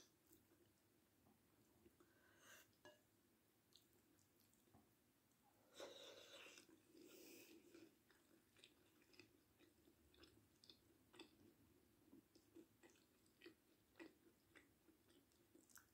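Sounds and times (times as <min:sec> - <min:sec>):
chewing food: 0:03.7 - 0:04.9, 0:05.7 - 0:15.9.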